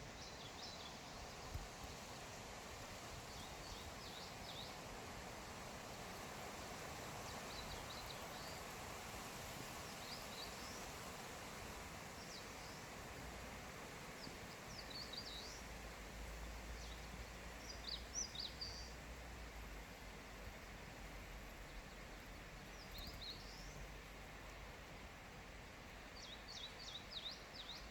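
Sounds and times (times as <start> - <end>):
steady soft hiss: 0.0 - 27.9
small birds chirping: 7.2 - 8.8, 14.1 - 19.0, 21.5 - 24.6, 26.2 - 27.9.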